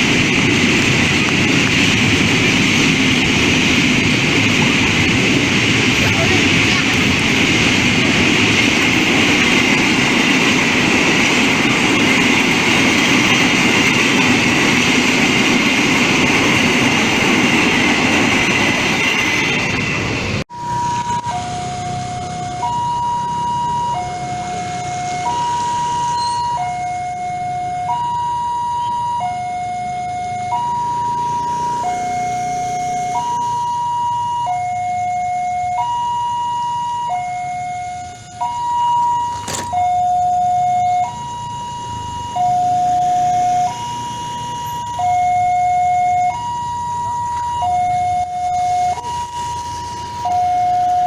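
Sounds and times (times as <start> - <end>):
two-tone crossing alarm: 0.0 - 51.0.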